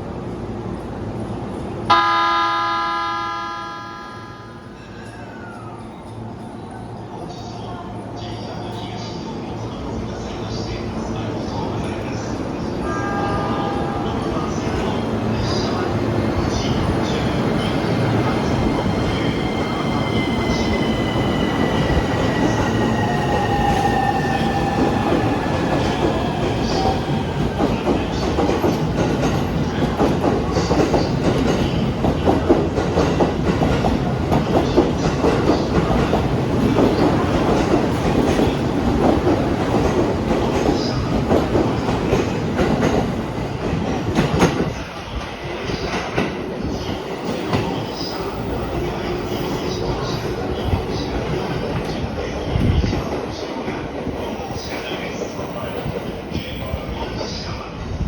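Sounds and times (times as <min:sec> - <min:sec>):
train wheels clattering over rails: 0:14.4 - 0:56.8.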